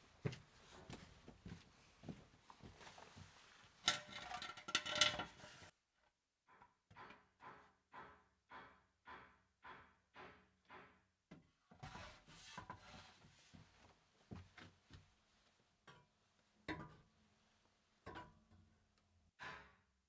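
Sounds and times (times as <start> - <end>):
metal parts clattering: 3.9 - 5.7.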